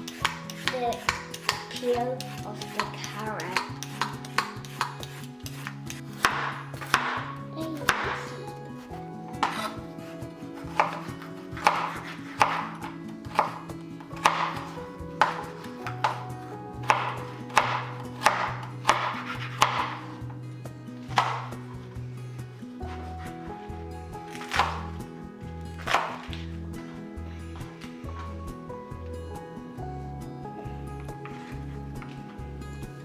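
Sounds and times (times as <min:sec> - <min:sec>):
knife cutting vegetables: 0:00.0 - 0:20.3, 0:21.0 - 0:22.0, 0:22.8 - 0:23.7, 0:24.3 - 0:25.1, 0:25.8 - 0:27.0.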